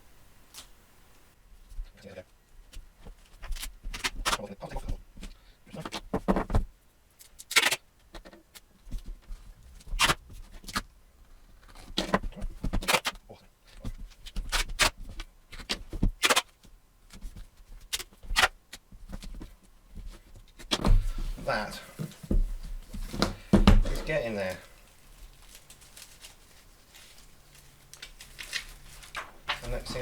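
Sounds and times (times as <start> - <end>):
tape ripping and rustling: 7.2 - 10.9, 11.5 - 13.2, 14.1 - 17.2, 17.8 - 19.3, 20.2 - 30.0.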